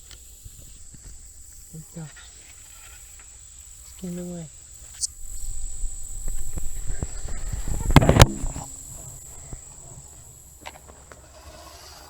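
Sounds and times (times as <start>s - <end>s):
insect drone: 0.0s - 12.0s
dirt bike tyres rumbling: 4.8s - 12.0s
rattles and knocks: 5.3s - 10.3s.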